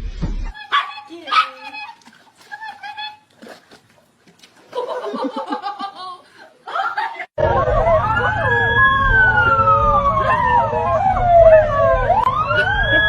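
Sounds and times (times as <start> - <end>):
wailing siren: 7.4 - 13.0.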